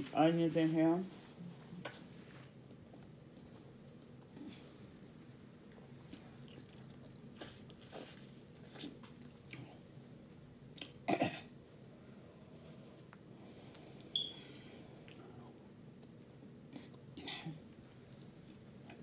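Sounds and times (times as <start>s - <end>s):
faint steady hum: 0.0s - 19.0s
person chewing food: 5.7s - 9.8s.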